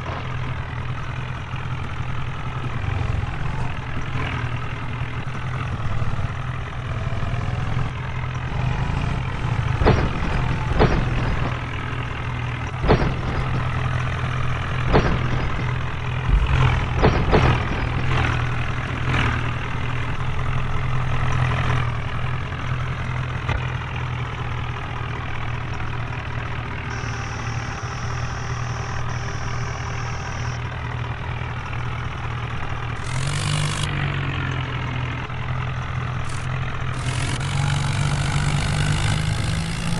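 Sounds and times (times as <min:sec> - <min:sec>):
diesel tractor engine idling: 0:00.0 - 0:39.9
sharp knocks and clanks: 0:09.3 - 0:21.8.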